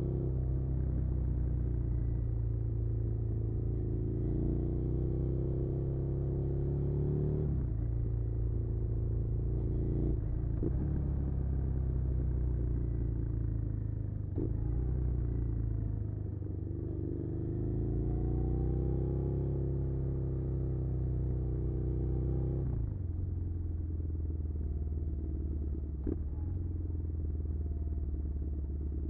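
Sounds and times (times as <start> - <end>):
motorcycle engine running: 22.8 - 29.0.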